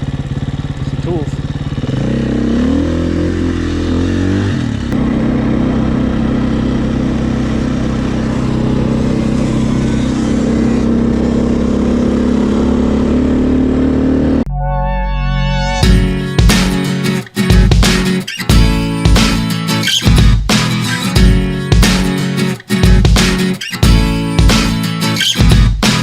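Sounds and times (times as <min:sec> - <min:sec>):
dirt bike engine revving: 0:00.0 - 0:14.5
guitar music: 0:04.9 - 0:11.0, 0:14.3 - 0:26.0.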